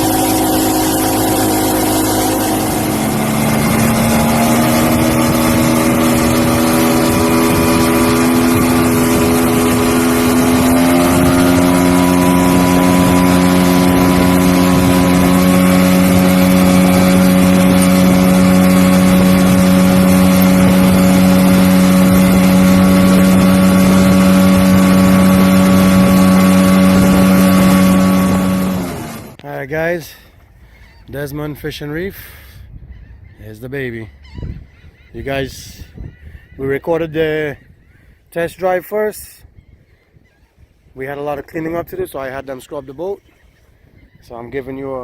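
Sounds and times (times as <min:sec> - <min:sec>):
outboard motor running: 0:00.0 - 0:29.4
water noise: 0:00.0 - 0:29.4
wind noise: 0:00.0 - 0:29.4, 0:32.6 - 0:33.4, 0:34.0 - 0:38.6, 0:39.4 - 0:42.4.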